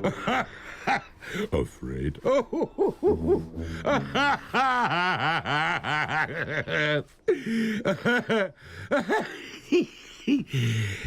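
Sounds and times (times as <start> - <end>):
breaths: 0.5 - 1.6, 7.3 - 7.8, 8.6 - 8.9, 10.0 - 11.0
cartoon monster laughing: 2.2 - 7.1.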